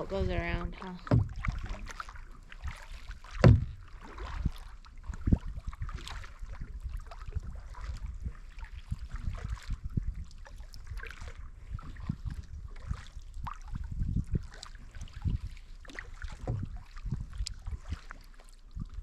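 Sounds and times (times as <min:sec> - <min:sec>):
paddle splashing in water: 0:00.0 - 0:19.0
low thumps: 0:00.1 - 0:01.7, 0:03.3 - 0:03.8.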